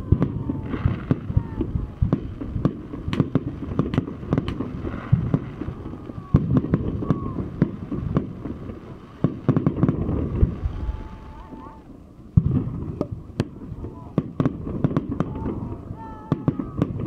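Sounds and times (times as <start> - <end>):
fireworks bangs and pops: 0.0 - 17.0.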